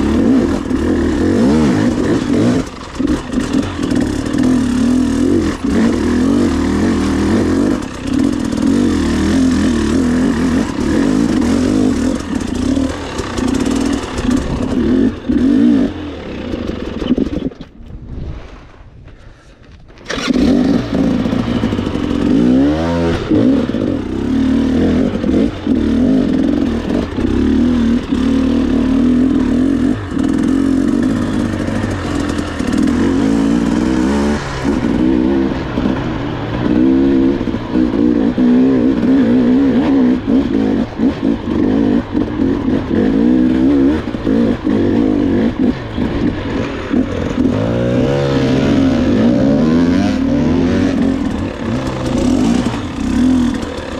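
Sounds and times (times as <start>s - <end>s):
dirt bike engine revving: 0.0s - 17.6s, 20.0s - 53.9s.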